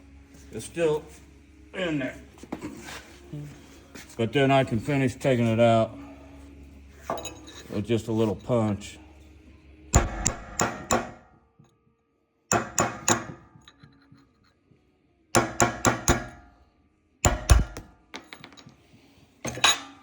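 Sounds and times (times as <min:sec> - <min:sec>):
hammer striking metal punch: 0:09.9 - 0:11.4, 0:12.5 - 0:13.9, 0:15.4 - 0:16.5, 0:17.2 - 0:18.6.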